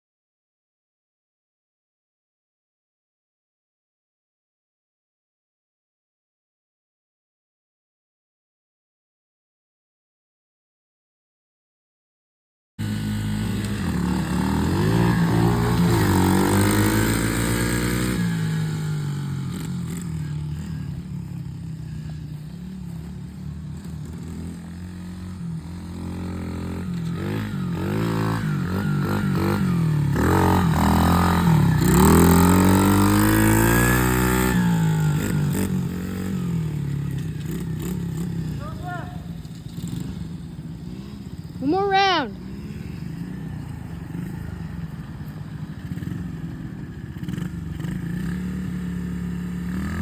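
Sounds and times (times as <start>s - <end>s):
off-road motorbike engine revving: 12.8s - 50.0s.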